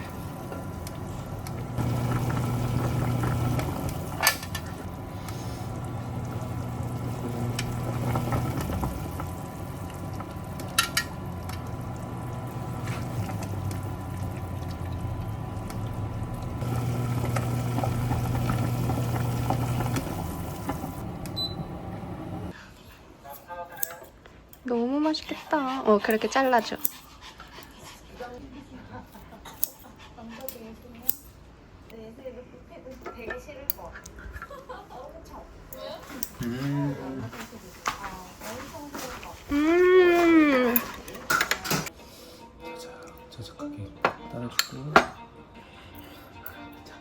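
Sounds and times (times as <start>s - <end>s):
low electric hum: 0.0s - 22.5s
sauce simmering and bubbling: 0.0s - 22.5s.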